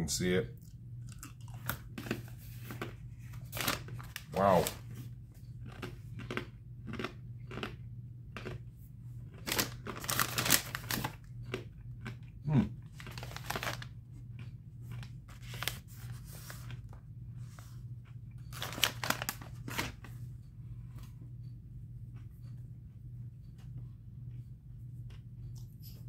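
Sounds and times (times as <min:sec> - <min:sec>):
crunching crisp crackers: 0:00.6 - 0:17.0, 0:18.1 - 0:20.1
person humming mm: 0:12.5 - 0:12.7.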